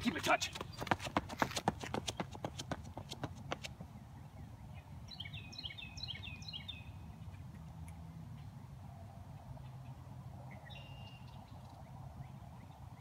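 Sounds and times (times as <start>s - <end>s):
songbird chirping: 3.8s - 13.0s.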